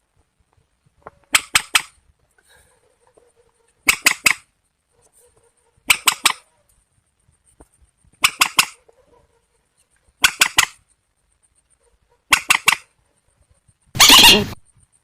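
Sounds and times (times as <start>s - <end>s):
long rasping bird call: 14.0s - 14.6s.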